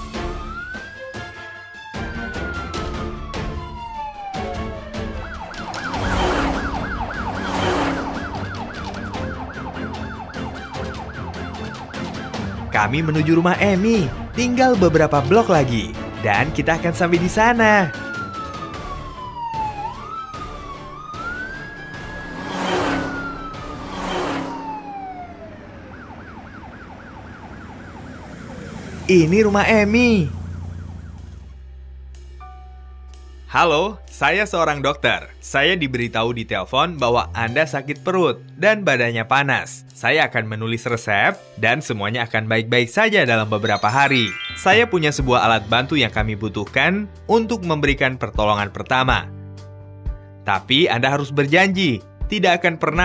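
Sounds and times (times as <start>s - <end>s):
cartoon ambulance siren: 0.0s - 14.6s, 16.4s - 31.6s, 43.1s - 46.2s
background music: 0.0s - 27.2s, 28.7s - 53.0s
rushing noise: 5.5s - 8.9s, 21.6s - 25.9s.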